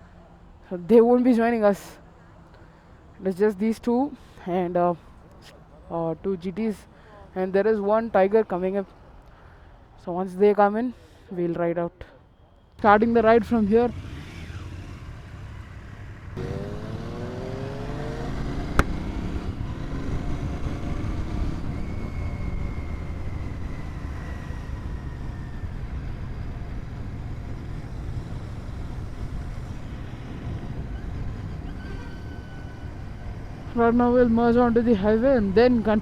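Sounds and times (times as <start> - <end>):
motorcycle engine pulling away: 13.6 - 33.7.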